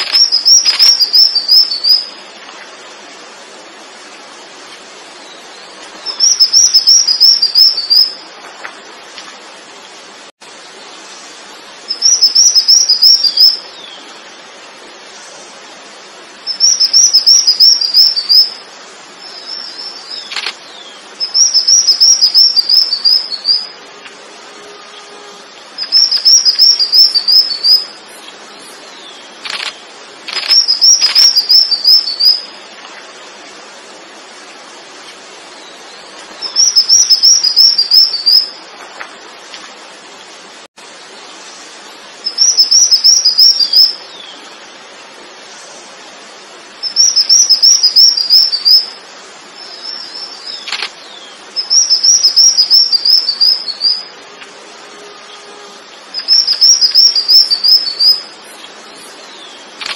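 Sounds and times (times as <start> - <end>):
songbird singing: 0.0 - 59.9
faint sharp clicks: 20.3 - 20.6, 29.4 - 31.2, 50.6 - 51.0.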